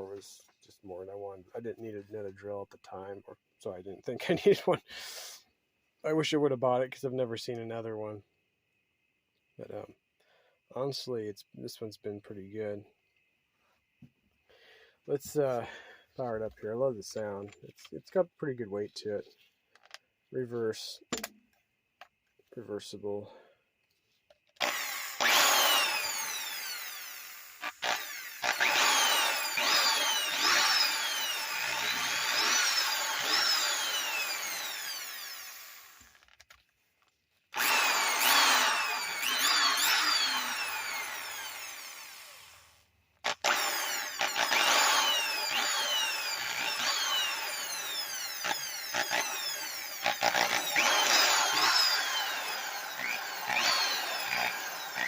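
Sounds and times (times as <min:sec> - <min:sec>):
electric drill motor whine: 0:24.6 - 0:36.2, 0:37.5 - 0:55.0.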